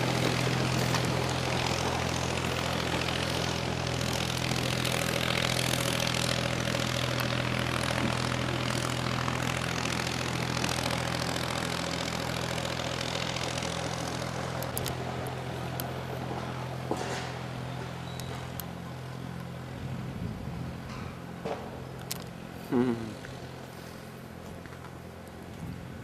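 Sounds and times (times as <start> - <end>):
engine humming: 0.0 - 26.0
sharp clicks: 14.5 - 15.0.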